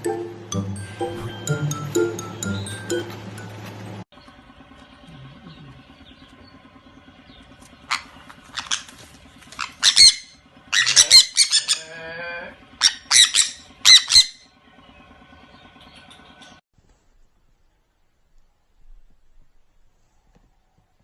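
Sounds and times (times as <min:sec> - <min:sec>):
parrot squawking: 0:07.8 - 0:14.5.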